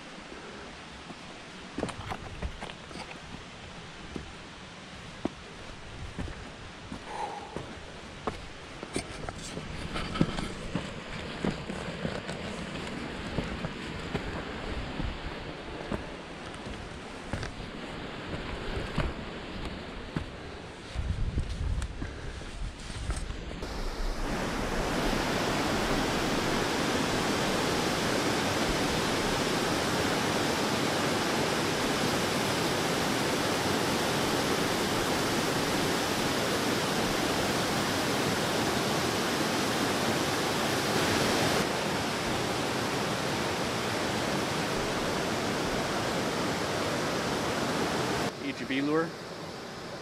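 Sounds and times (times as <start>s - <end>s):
waterfall rushing: 23.6s - 50.0s.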